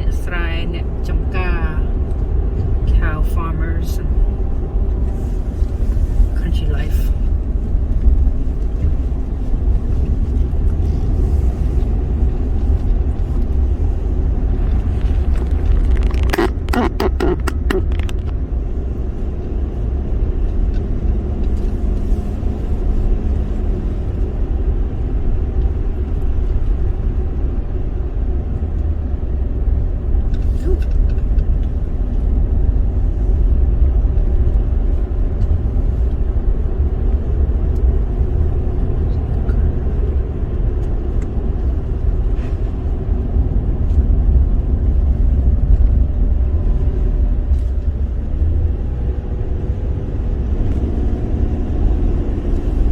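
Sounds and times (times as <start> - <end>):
car driving road rumble: 0.0 - 52.9
sharp clicks or rattles: 15.0 - 18.4.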